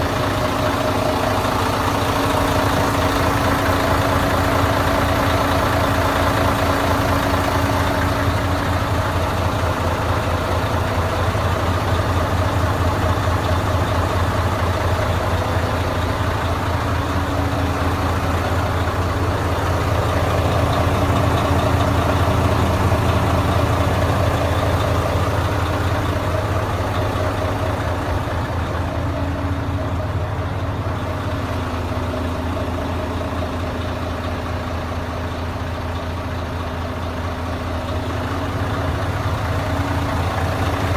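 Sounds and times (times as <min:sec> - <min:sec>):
truck diesel engine idling: 0:00.0 - 0:40.9.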